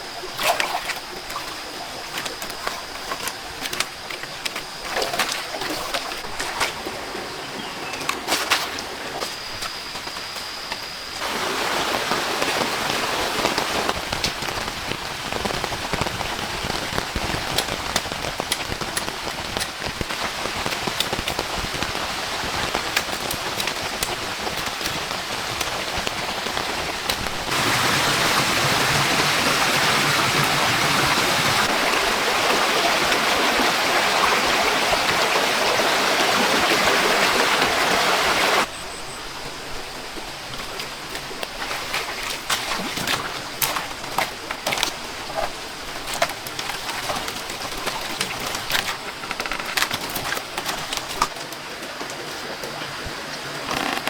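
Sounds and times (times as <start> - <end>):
heavy rain falling: 11.2 - 38.7, 43.5 - 54.0.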